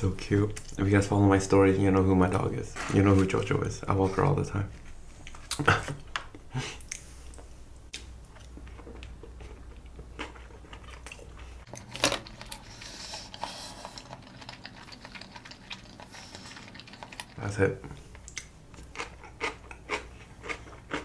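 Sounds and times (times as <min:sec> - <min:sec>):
person chewing: 0:05.0 - 0:17.4, 0:18.0 - 0:21.0.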